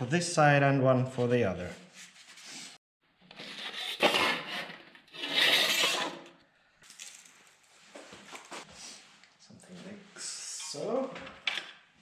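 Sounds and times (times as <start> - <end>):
rubbing and scraping strokes: 3.4 - 6.2.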